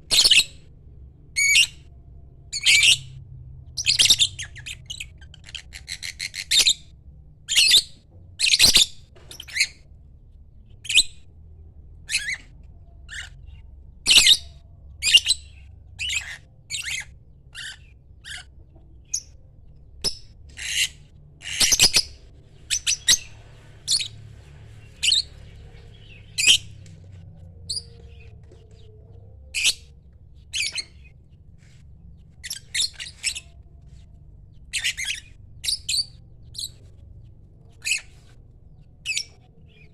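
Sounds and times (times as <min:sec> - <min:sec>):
bird chirps and squawks: 0:00.1 - 0:00.6, 0:03.8 - 0:06.9, 0:13.1 - 0:19.4, 0:20.0 - 0:24.2, 0:32.4 - 0:33.6, 0:34.7 - 0:36.8, 0:37.8 - 0:38.3.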